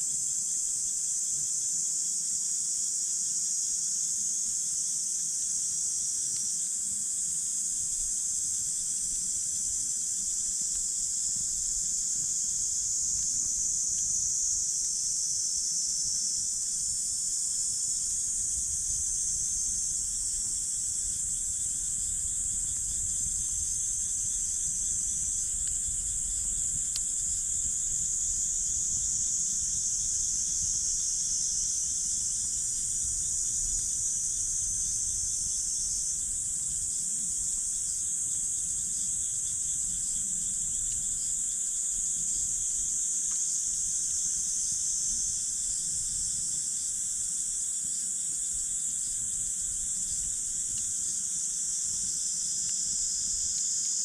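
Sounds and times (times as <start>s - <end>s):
insects chorus: 0.0s - 54.0s.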